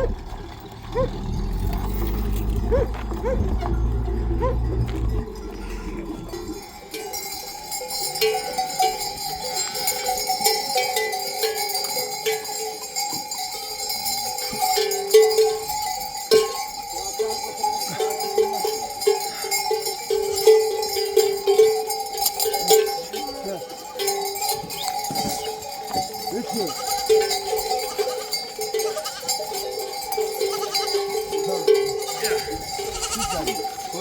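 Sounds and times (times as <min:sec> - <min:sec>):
sheep and goat bells clanking: 0:00.0 - 0:34.0.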